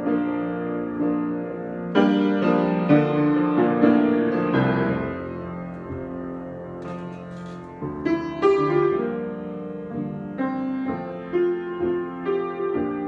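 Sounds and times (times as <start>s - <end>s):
solo piano chords: 0.0s - 13.0s.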